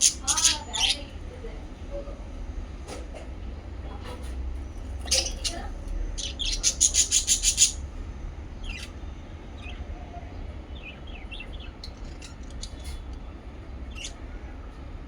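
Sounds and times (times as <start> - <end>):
parrots chirping: 0.0 - 1.3, 4.8 - 9.0, 9.6 - 14.4
low steady hum: 0.0 - 15.0.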